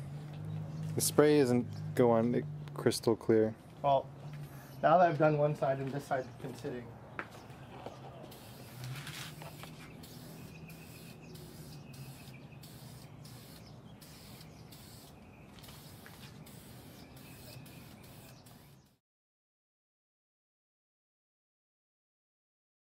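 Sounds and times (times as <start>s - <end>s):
aerosol can hissing: 8.3s - 18.9s.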